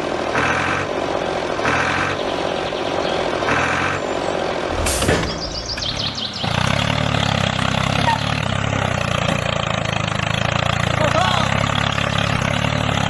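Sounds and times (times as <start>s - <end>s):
tractor engine chugging: 0.0s - 13.0s
sharp clatter: 4.7s - 7.7s.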